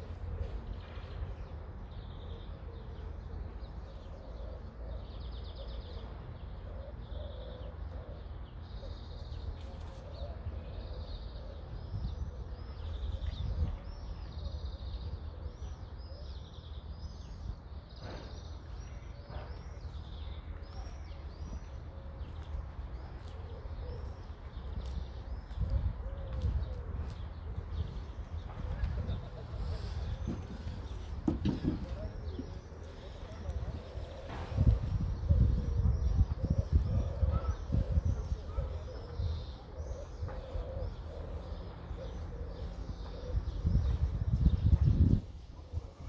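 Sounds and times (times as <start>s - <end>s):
small birds chirping: 0.0s - 46.0s
steady low rumble: 31.9s - 46.0s.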